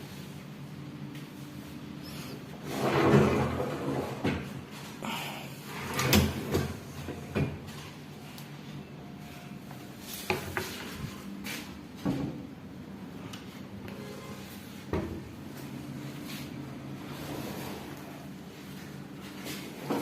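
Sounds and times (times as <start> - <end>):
drawer sliding: 2.6 - 4.5, 5.7 - 7.6, 17.0 - 18.3.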